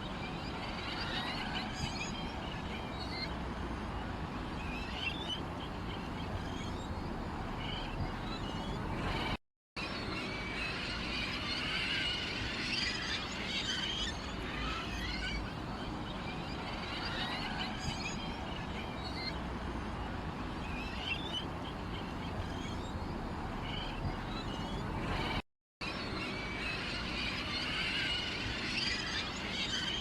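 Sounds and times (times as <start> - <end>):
small birds chirping: 0.0 - 9.4, 20.1 - 25.4.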